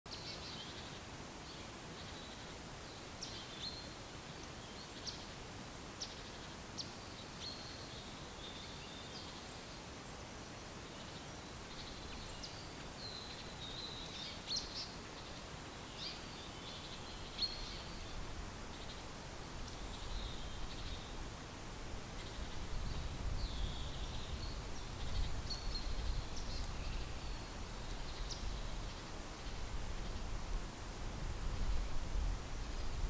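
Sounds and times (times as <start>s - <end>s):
steady outdoor hiss: 0.1s - 33.0s
birds chirping and trilling: 11.0s - 21.2s, 22.1s - 30.3s.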